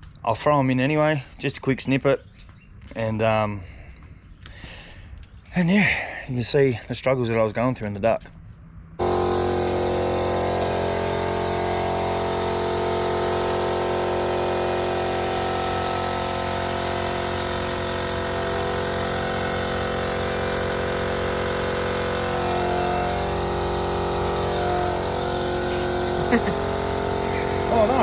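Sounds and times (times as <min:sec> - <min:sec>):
air compressor motor running: 0:09.0 - 0:28.0
high hiss of air: 0:09.0 - 0:28.0.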